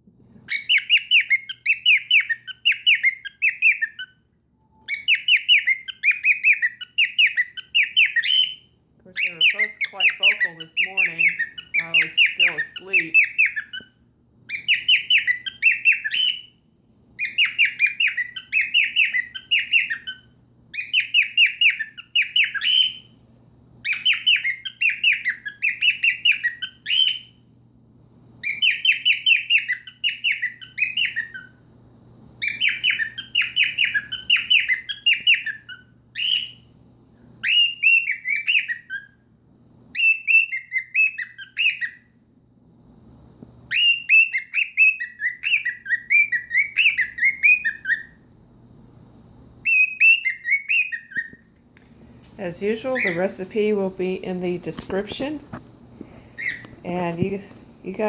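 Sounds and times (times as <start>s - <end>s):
cockatiels whistling: 0.4s - 16.6s, 17.2s - 23.2s, 23.8s - 27.4s, 28.4s - 31.6s, 32.4s - 36.7s, 37.4s - 39.2s, 39.9s - 42.1s, 43.7s - 48.2s, 49.6s - 51.5s, 52.8s - 53.5s, 56.2s - 56.8s.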